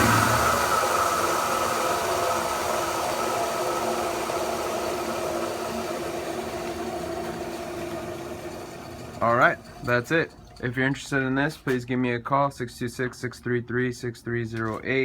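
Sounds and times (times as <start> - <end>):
grinder motor whirring down: 0.0 - 9.2.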